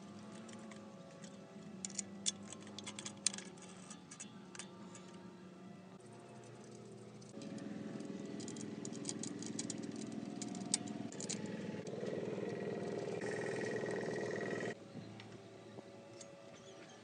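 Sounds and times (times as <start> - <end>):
rattling clicks: 0.2 - 5.2, 6.4 - 13.2
small motor running: 7.4 - 14.8.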